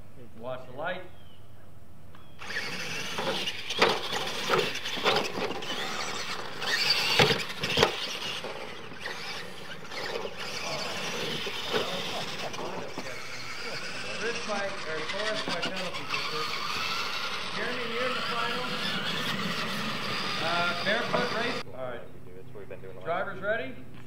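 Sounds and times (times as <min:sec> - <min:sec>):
rc truck motors whining: 0:02.2 - 0:21.7
trucks landing knocks: 0:02.4 - 0:13.2
tyres churning dirt: 0:02.4 - 0:21.7.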